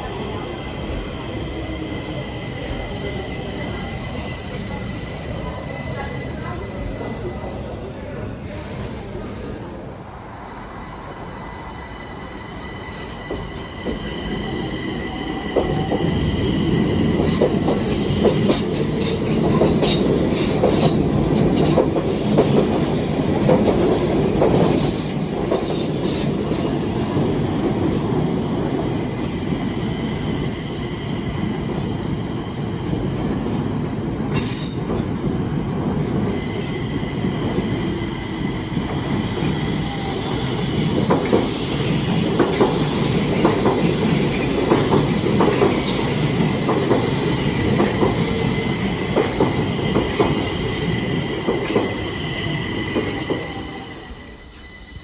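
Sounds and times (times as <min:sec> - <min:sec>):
train rumbling on rails: 0:00.0 - 0:55.0
high-pitched whining and wheel squeal: 0:52.0 - 0:55.0.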